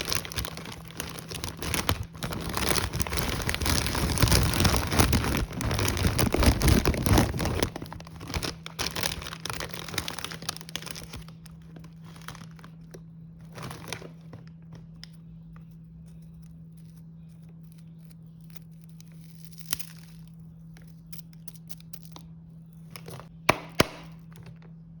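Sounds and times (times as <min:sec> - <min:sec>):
plastic wrappers crinkling: 0:00.0 - 0:15.0.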